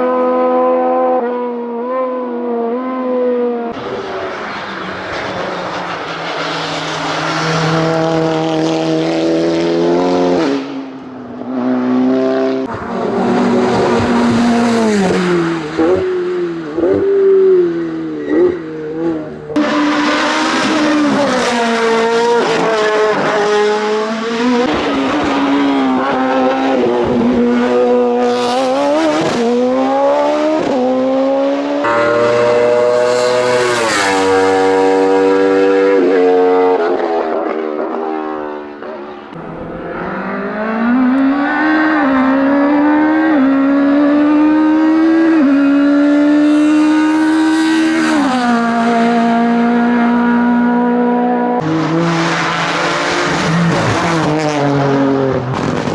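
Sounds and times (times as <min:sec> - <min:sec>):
race car engines at full throttle: 0:00.0 - 0:55.9.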